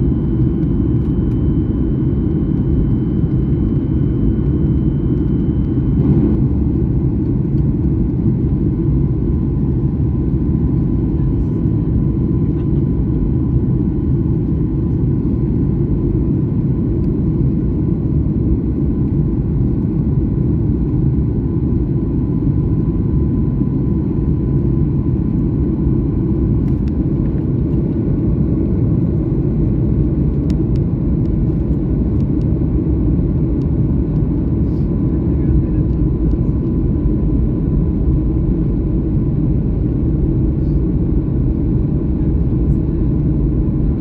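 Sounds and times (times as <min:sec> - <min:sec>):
airliner cabin engine rumble: 0:00.0 - 0:44.0.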